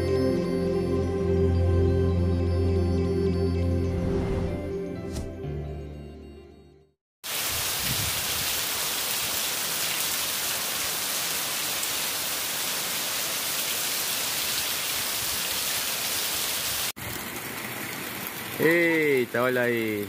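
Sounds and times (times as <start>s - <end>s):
heavy rain on pavement: 7.2s - 20.0s.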